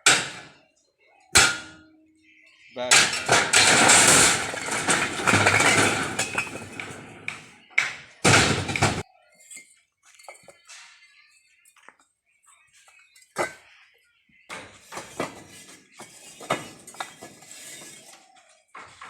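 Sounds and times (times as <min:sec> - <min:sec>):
load crashing off trailer: 0:02.9 - 0:09.0.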